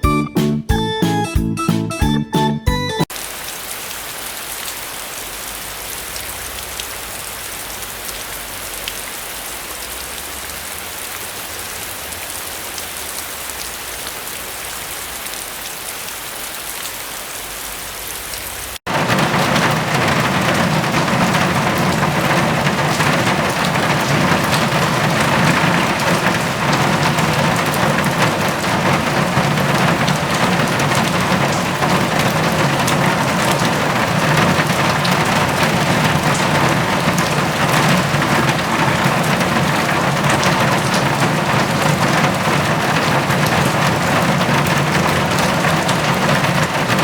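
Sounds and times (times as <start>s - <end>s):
guitar music: 0.0s - 3.0s
steady rain falling: 3.1s - 47.0s.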